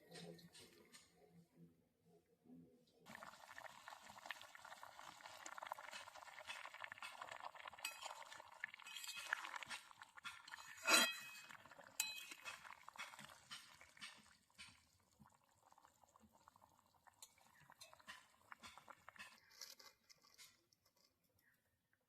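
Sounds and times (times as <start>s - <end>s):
curry simmering and bubbling: 3.0s - 21.5s
metal utensil clinking on pot: 5.9s - 14.8s, 17.2s - 20.5s.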